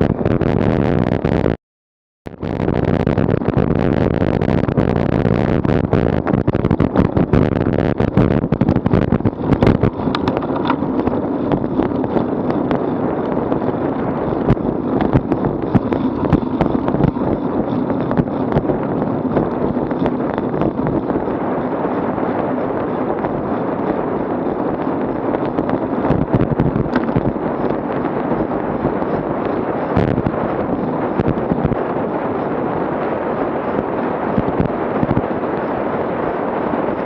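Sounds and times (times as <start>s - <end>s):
wind buffeting microphone: 0.0s - 1.6s, 2.3s - 37.0s
bike rattling clicks and knocks: 8.6s - 13.3s.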